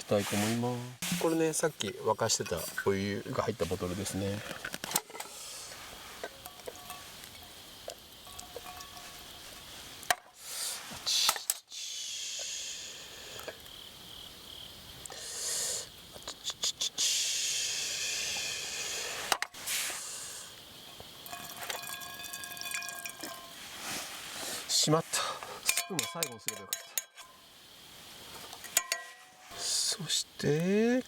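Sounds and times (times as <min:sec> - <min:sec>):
hot water pouring: 0:19.6 - 0:26.6
bottle and utensil clicks: 0:25.6 - 0:27.4.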